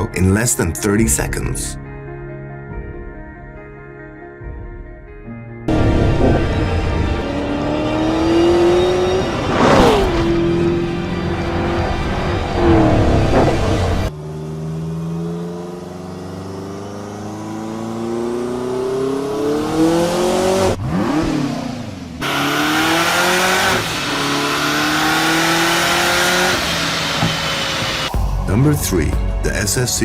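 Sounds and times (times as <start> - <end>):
car engine accelerating hard: 5.7 - 28.1.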